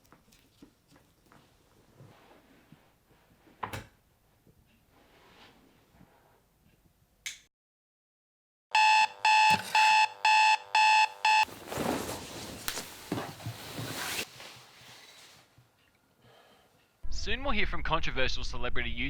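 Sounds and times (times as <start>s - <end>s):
alarm clock beeping: 8.7s - 11.5s
rustling: 11.4s - 15.6s.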